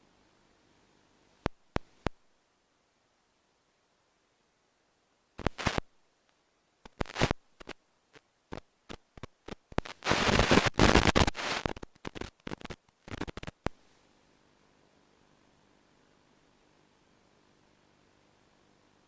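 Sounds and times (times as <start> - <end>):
crackling static: 0.0 - 2.4, 5.2 - 19.0.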